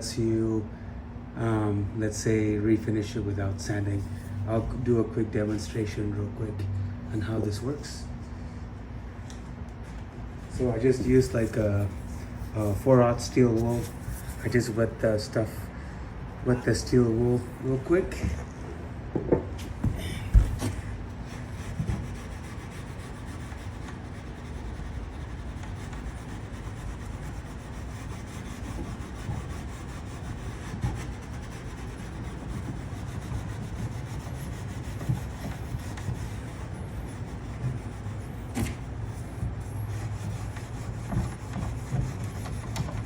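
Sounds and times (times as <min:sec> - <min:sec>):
small knocks: 0:19.1 - 0:20.8
steel wool scrubbing wood: 0:20.6 - 0:43.0.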